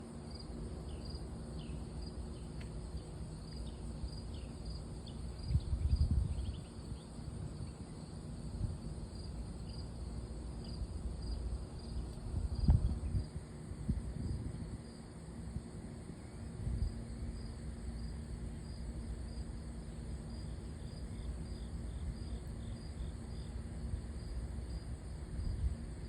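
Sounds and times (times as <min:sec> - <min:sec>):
cricket chirping: 0:00.0 - 0:26.0
wind buffeting microphone: 0:05.4 - 0:06.8, 0:12.2 - 0:14.9.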